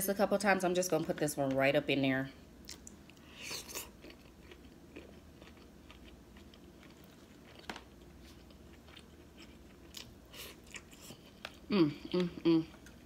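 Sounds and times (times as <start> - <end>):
soft wet chewing clicks: 2.6 - 3.3, 4.0 - 13.0.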